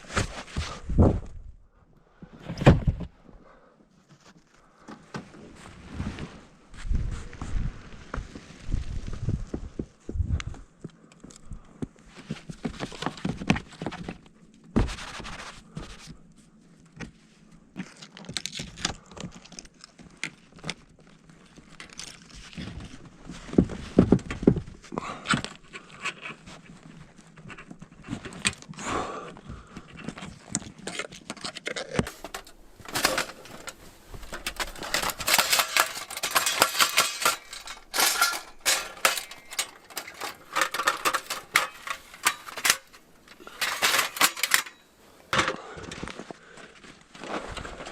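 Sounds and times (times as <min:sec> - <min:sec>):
camping gear knocking and rustling: 0:00.0 - 0:01.5, 0:02.2 - 0:03.4, 0:04.0 - 0:16.3, 0:16.9 - 0:47.9
rapid clicking and scraping: 0:30.3 - 0:44.8.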